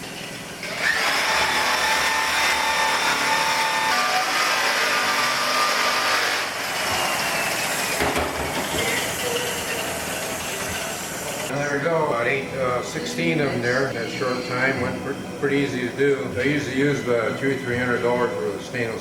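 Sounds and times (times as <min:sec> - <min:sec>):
power tool grinding metal: 0:00.6 - 0:11.5.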